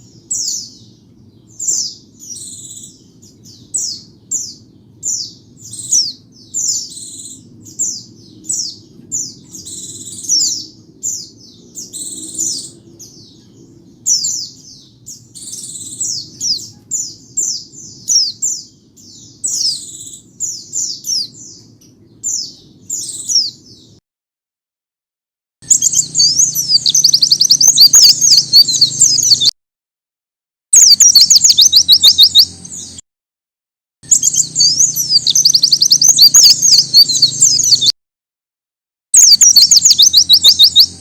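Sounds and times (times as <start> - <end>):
bird chirping and twittering: 0.0 - 24.0, 25.6 - 29.5, 30.8 - 33.0, 34.0 - 37.9, 39.2 - 41.0
faint low rumble: 0.0 - 24.0.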